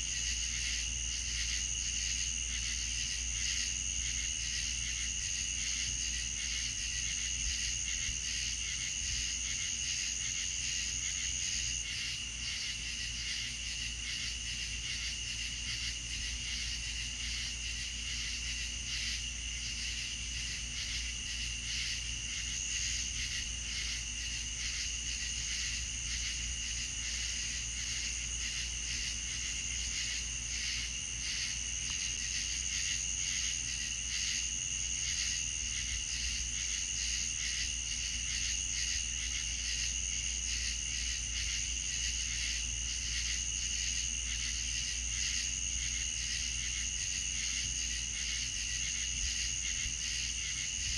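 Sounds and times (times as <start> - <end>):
crickets trilling: 0.0 - 50.9.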